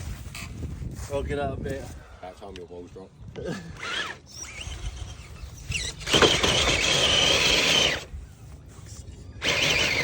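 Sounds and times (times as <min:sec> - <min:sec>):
small electric motor whining: 0:03.7 - 0:10.0.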